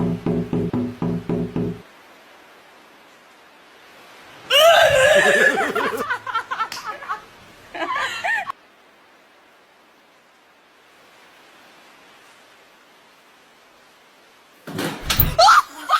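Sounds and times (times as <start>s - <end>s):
high-pitched laughter-like voice: 4.5s - 7.0s.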